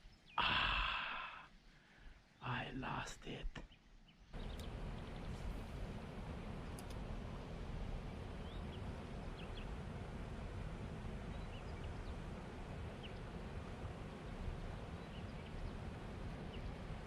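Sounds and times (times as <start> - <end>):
faint bird chirps: 0.0 - 5.9, 8.0 - 9.8, 11.2 - 13.4, 14.1 - 17.0
wind: 0.0 - 17.0
river water: 4.4 - 17.0.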